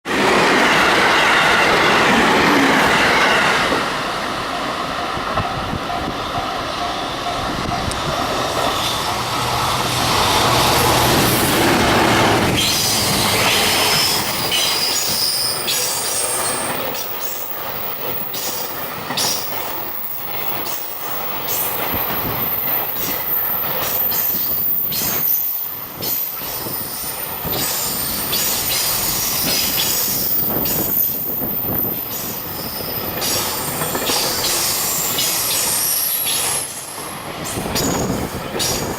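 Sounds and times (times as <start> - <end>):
electric locomotive passing: 0.1 - 38.9
wheels clacking over rail joints: 33.0 - 38.9.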